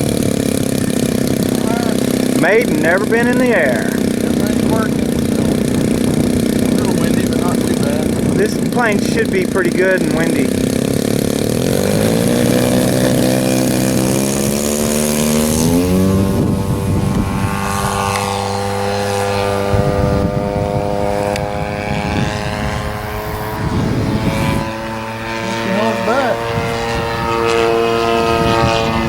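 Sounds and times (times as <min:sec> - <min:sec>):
model airplane engine revving: 0:00.0 - 0:29.0.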